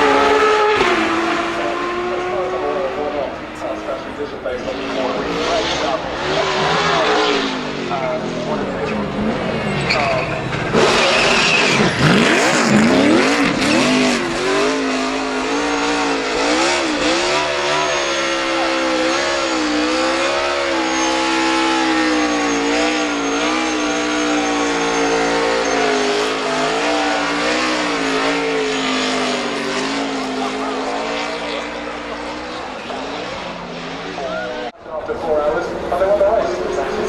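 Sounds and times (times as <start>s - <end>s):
race car engine revving: 0.0s - 37.0s.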